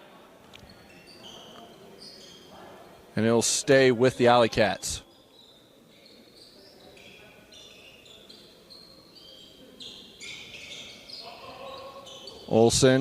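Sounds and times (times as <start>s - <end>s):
sneakers squeaking on court: 0.6s - 2.9s, 5.1s - 13.0s.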